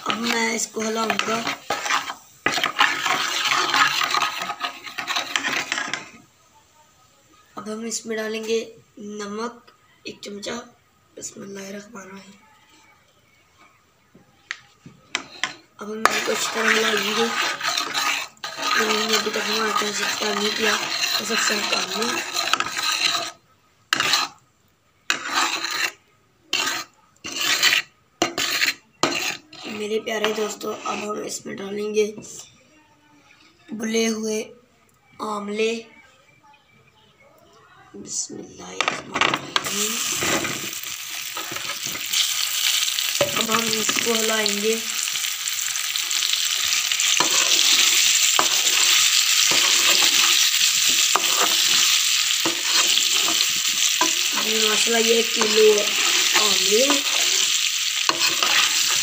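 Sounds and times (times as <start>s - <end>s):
gooseberries sizzling in hot oil: 0.0s - 6.2s, 15.2s - 24.4s, 39.5s - 59.0s
spoon scraping a pan: 0.0s - 6.3s, 15.0s - 24.4s, 25.1s - 31.4s, 38.8s - 59.0s.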